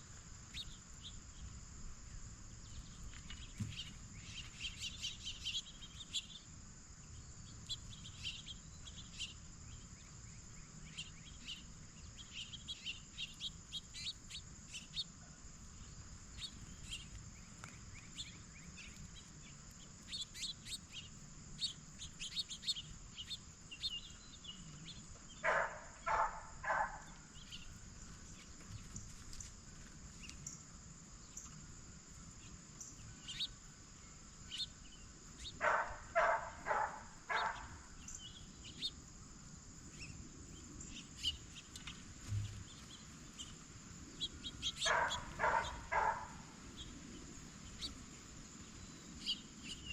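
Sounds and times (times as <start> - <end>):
small birds chirping: 0.0 - 39.1, 39.8 - 49.9
harsh bird calls: 20.1 - 27.8, 35.4 - 38.9, 42.2 - 47.0.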